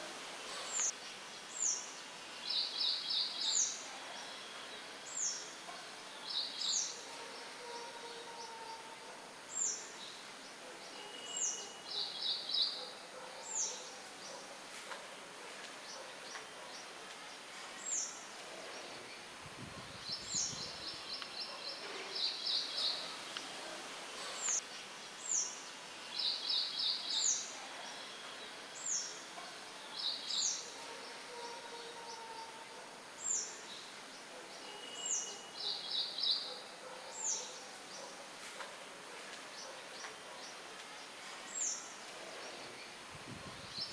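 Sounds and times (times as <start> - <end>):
songbirds chirping: 0.0 - 43.9
light wind hiss: 17.8 - 29.0.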